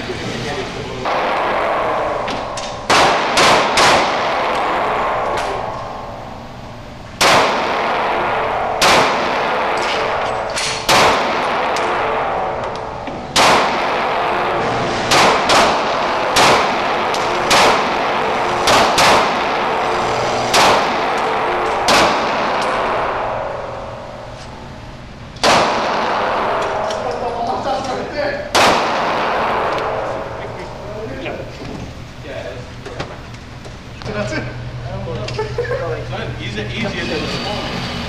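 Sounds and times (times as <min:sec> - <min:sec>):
gunshots with echo: 0:01.0 - 0:24.4, 0:25.4 - 0:27.2, 0:28.5 - 0:30.5.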